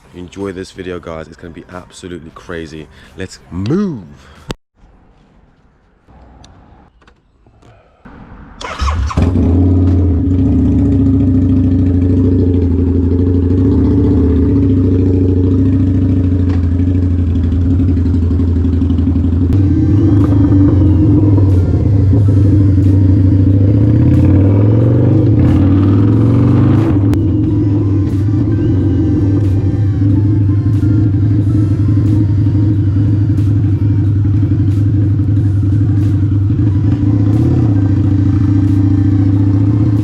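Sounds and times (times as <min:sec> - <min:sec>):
motorcycle engine starting and idling: 0:08.6 - 0:40.0.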